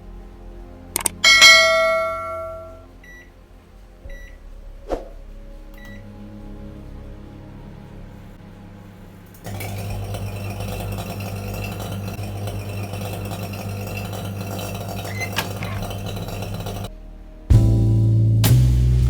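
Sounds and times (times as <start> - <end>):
microwave oven humming: 9.5 - 16.9.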